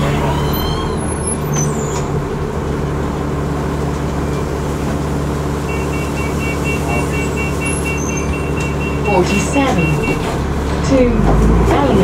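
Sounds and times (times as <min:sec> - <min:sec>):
bus engine drone: 0:00.0 - 0:12.0
rapid two-tone electronic beeping: 0:05.6 - 0:10.3.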